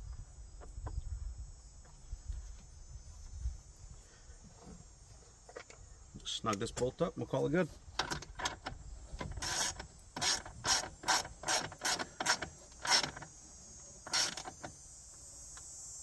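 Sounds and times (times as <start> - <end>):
ratchet wrench clicking: 9.2 - 13.3.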